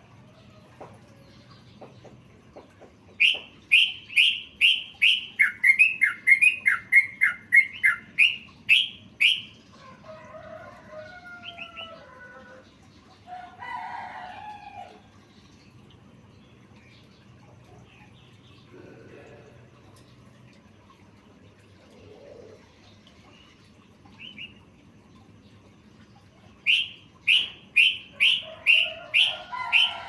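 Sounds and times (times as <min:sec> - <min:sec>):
bird song sharp repeated notes: 0:03.2 - 0:09.5, 0:26.6 - 0:28.8
bird chattering twitters: 0:26.6 - 0:29.9.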